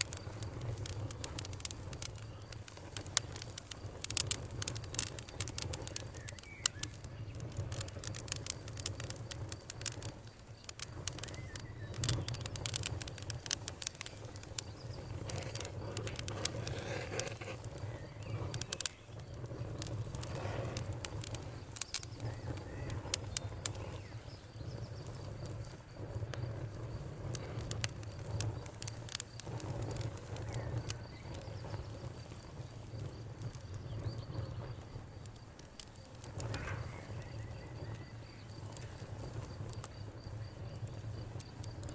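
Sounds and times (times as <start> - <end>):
crickets chirping: 0.0 - 41.9
wood fire crackling and popping: 0.0 - 41.9.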